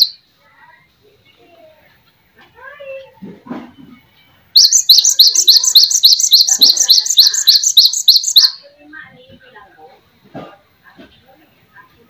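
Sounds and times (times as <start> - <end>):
songbird chirping rapidly: 0.0 - 0.2, 4.6 - 8.7.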